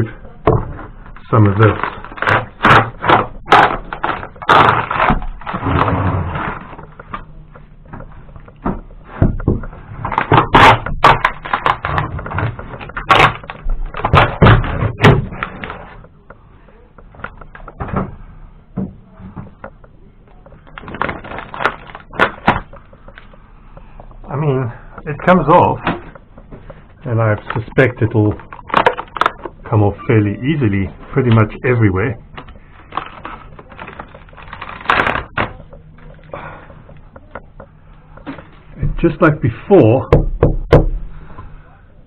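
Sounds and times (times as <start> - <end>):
lining being pried off: 0.4 - 16.2, 32.4 - 37.4.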